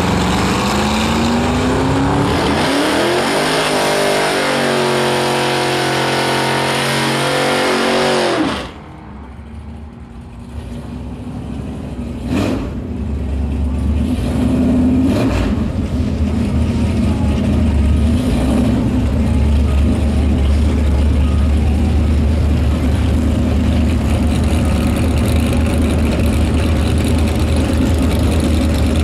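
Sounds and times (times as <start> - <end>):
car engine idling: 8.6 - 14.2, 15.5 - 29.0.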